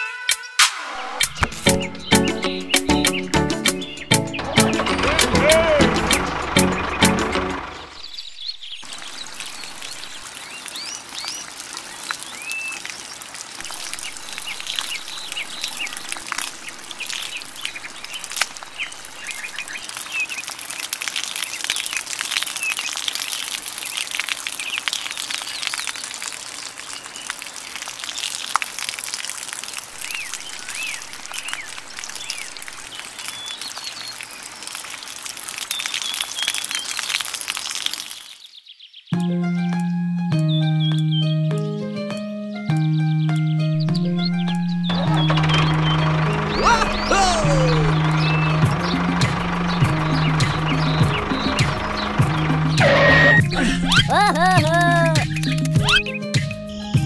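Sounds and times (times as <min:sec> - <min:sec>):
small birds chirping: 0:01.1 - 0:28.5, 0:30.0 - 0:57.0.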